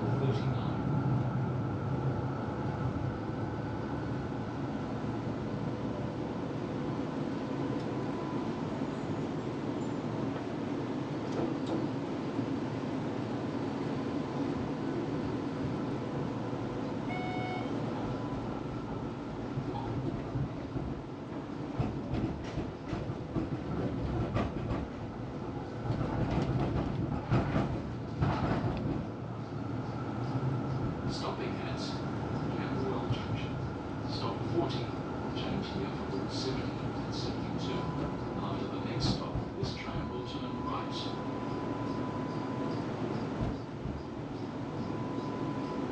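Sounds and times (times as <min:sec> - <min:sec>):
tram wheels and motors rumbling: 0:00.0 - 0:45.9
rail joint clicks and knocks: 0:11.2 - 0:12.0, 0:19.5 - 0:31.3, 0:35.4 - 0:45.8.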